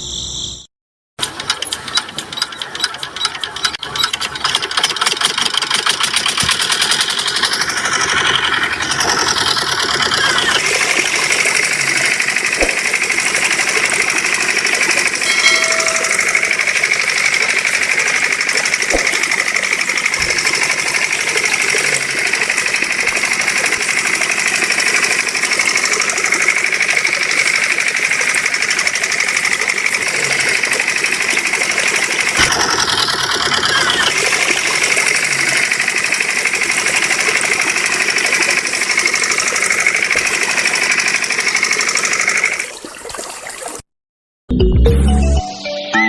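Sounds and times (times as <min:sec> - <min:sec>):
small motor chattering: 0:01.2 - 0:42.7
short tone: 0:15.2 - 0:18.2.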